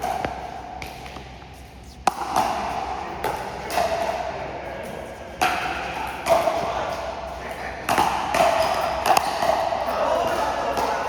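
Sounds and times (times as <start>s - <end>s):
scuffling court noise: 0.0s - 11.0s
paddle hitting plastic ball: 2.0s - 3.9s.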